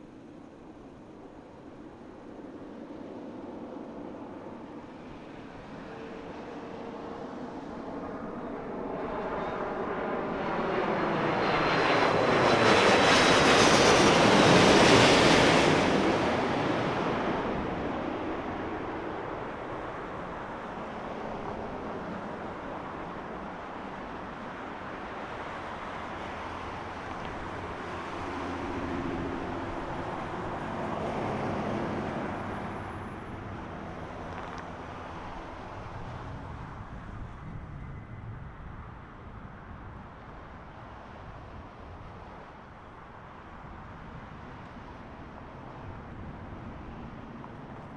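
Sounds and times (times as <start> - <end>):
jet airliner roar passing overhead: 3.9 - 47.9
wind noise on microphone: 33.4 - 42.4.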